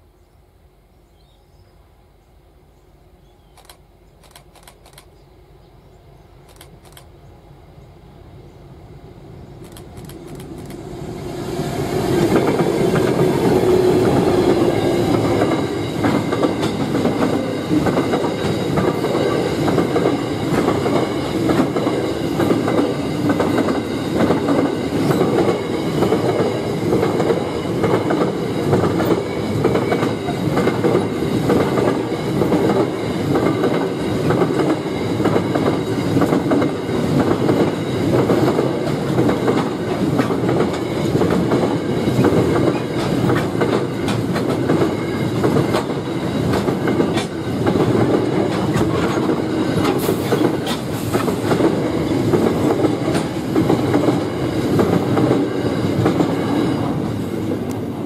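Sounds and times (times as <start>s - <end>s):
locomotive approaching: 3.6s - 58.0s
train wheels clattering over rail joints: 14.6s - 57.2s.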